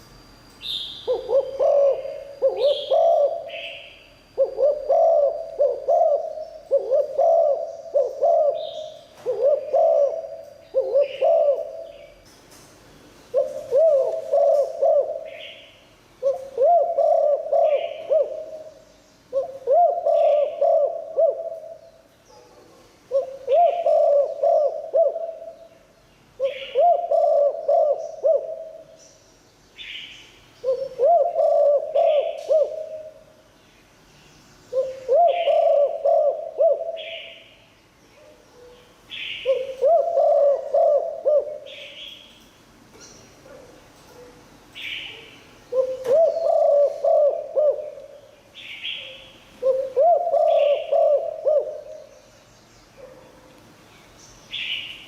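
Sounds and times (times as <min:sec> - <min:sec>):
dove cooing: 0:01.0 - 0:12.2, 0:13.3 - 0:25.7, 0:26.4 - 0:29.0, 0:30.6 - 0:33.4, 0:34.7 - 0:37.5, 0:38.3 - 0:42.2, 0:45.0 - 0:48.2, 0:48.8 - 0:52.1.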